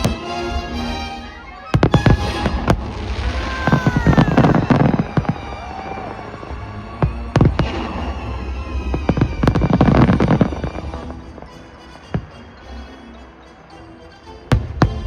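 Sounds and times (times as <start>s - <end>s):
fireworks bangs and crackling: 0.0s - 0.8s, 1.7s - 12.6s, 14.5s - 15.0s
show music: 0.0s - 15.0s.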